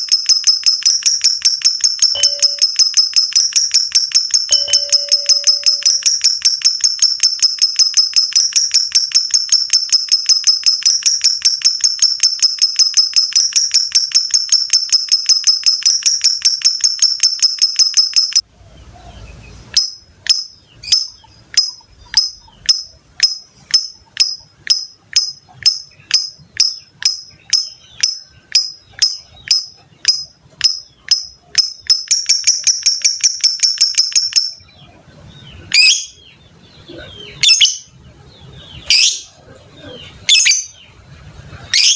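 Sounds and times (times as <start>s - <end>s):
lovebird chattering trill: 0.0s - 18.4s, 19.7s - 38.0s, 40.0s - 40.9s
lovebird squawks: 36.8s - 38.0s, 41.7s - 41.9s.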